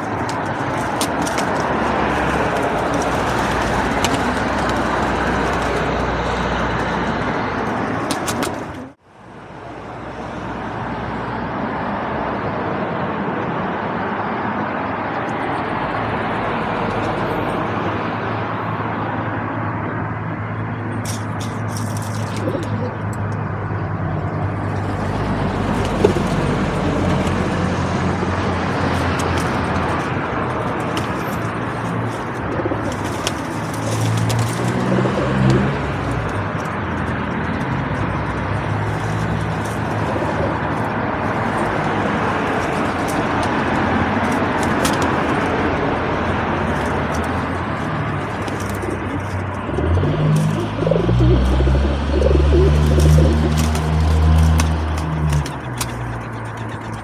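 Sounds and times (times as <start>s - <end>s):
pigeons cooing: 0.0s - 9.0s, 21.1s - 23.4s, 24.6s - 45.4s, 46.3s - 57.0s
vehicle engine: 0.0s - 12.3s, 14.7s - 57.0s
traffic hum: 0.0s - 57.0s.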